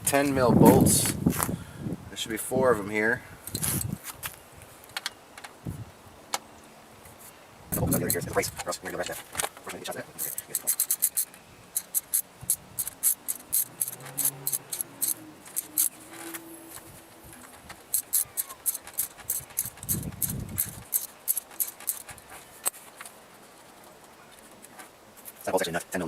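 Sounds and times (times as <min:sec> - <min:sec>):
socket ratchet clicking: 0:10.2 - 0:22.8.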